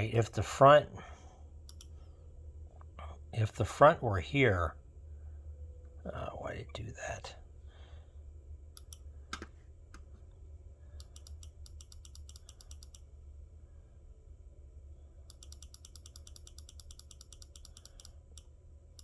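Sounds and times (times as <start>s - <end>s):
low steady hum: 0.0s - 19.0s
computer clicks: 1.6s - 1.9s, 8.8s - 9.5s, 11.0s - 13.1s, 15.3s - 19.0s.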